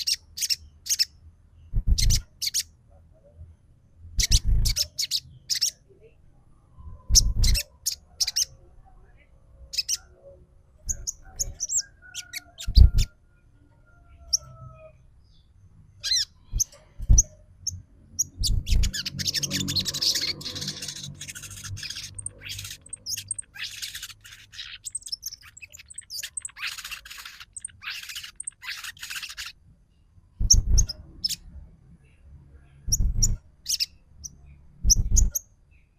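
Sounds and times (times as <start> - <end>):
bird whistles and chattering: 1.8 - 2.7, 4.2 - 5.8, 7.1 - 8.5, 10.9 - 13.1, 18.2 - 29.6, 30.4 - 31.4, 32.9 - 33.9, 34.8 - 35.4.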